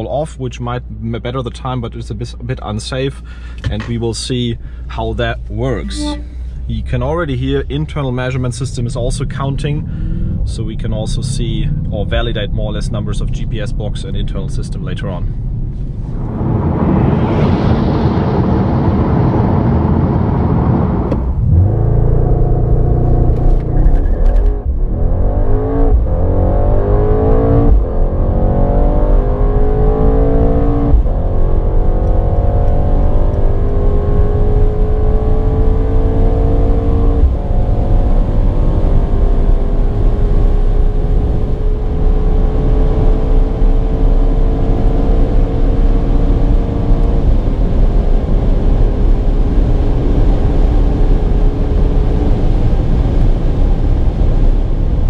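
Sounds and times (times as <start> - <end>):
car engine accelerating hard: 4.9 - 55.0.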